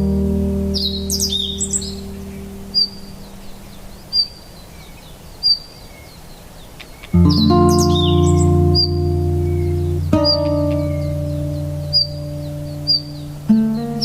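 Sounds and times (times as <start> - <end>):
low ambient music: 0.0 - 3.6, 7.2 - 14.0
songbird warbling phrase: 0.0 - 6.3, 7.0 - 14.0
songbird short high chirp: 0.7 - 14.0.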